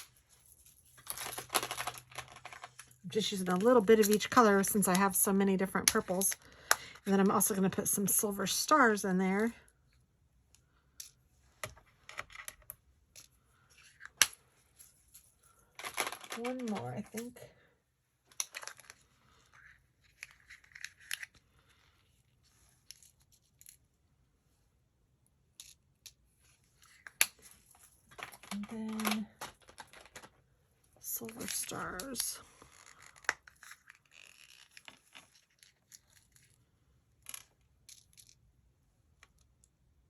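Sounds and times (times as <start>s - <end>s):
sequins rustling: 0.0s - 6.3s, 31.0s - 38.3s.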